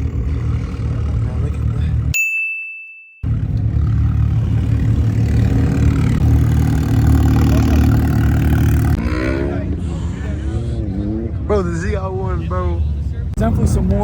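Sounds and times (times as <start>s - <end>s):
car engine running: 0.0s - 2.1s, 3.2s - 10.7s.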